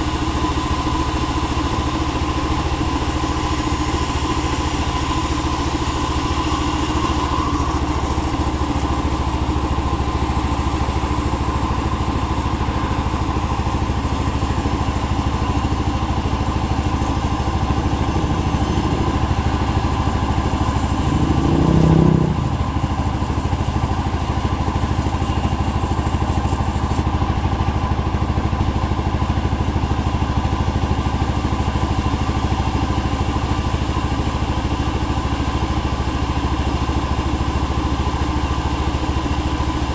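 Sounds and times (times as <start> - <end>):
wood saw engine running: 3.0 - 24.2.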